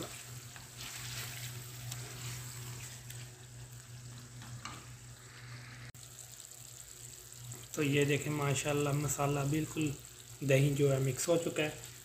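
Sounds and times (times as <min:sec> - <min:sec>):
wooden spoon scraping a pan: 0:00.0 - 0:03.4
food sizzling in a pan: 0:00.0 - 0:12.0.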